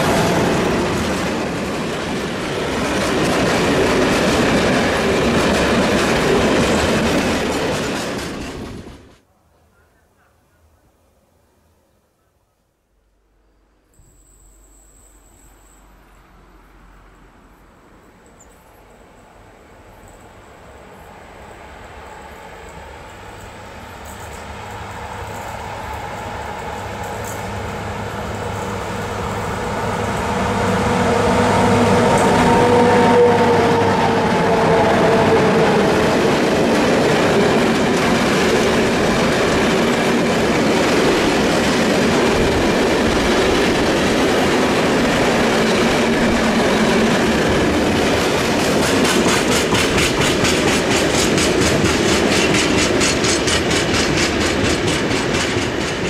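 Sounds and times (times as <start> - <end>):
electric locomotive whine: 0.0 - 9.2, 13.8 - 56.0
freight wagons rumbling: 0.0 - 9.2
wheels clacking over rail joints: 0.0 - 9.2, 23.4 - 56.0.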